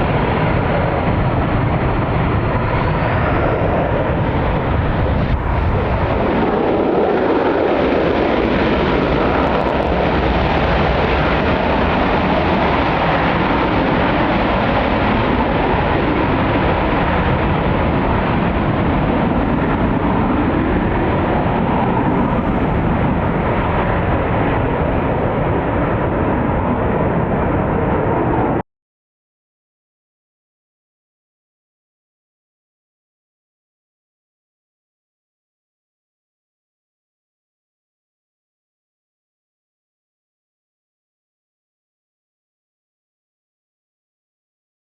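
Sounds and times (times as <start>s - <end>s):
military jet engine rumble: 0.0s - 28.6s.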